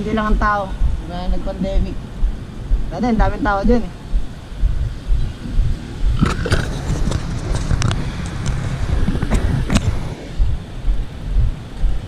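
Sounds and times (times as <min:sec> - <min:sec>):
wind rumbling on microphone: 0:00.0 - 0:12.0
sharp clicks and rattles: 0:06.0 - 0:11.0.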